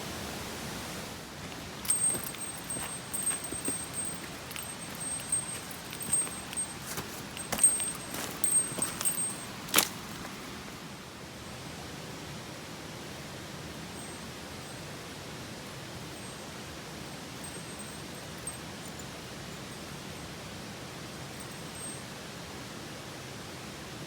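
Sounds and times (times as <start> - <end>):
mountain stream rushing: 0.0 - 11.2
light clicks and knocks: 1.4 - 10.4.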